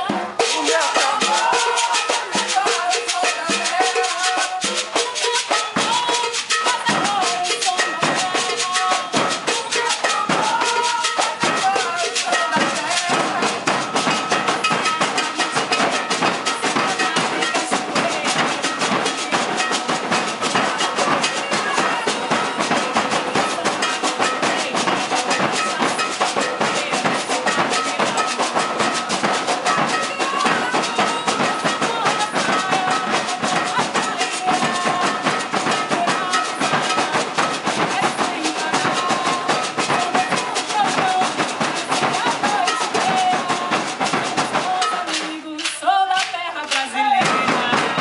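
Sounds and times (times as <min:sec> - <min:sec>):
drum ensemble playing: 0:00.0 - 0:48.0
voices: 0:00.0 - 0:48.0.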